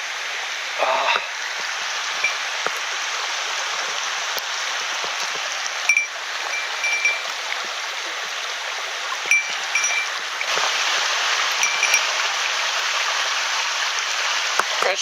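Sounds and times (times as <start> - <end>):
stream rushing over rocks: 0.0 - 15.0
short high ringing notes: 5.9 - 7.3, 9.3 - 10.2.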